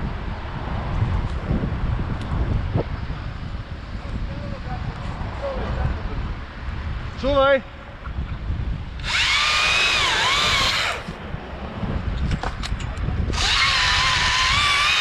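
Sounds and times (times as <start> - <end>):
battery chainsaw cutting: 9.0 - 11.2, 13.3 - 15.0.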